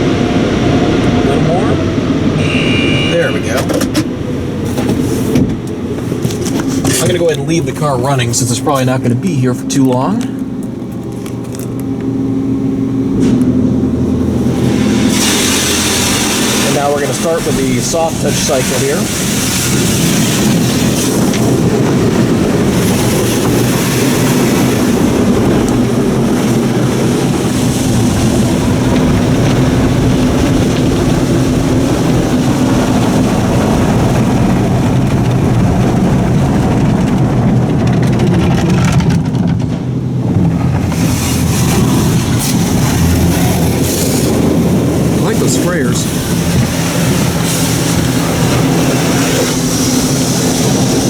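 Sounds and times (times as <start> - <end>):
water spraying: 0.0 - 12.0, 13.1 - 37.8, 39.8 - 51.0
cloth brushes scrubbing car body: 4.6 - 9.0, 40.7 - 51.0.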